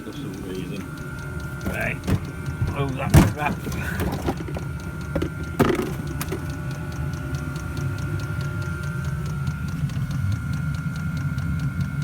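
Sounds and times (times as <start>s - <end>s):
fuel pump ticking: 0.0s - 12.0s
heater humming: 0.0s - 12.0s
knocks: 1.6s - 6.5s.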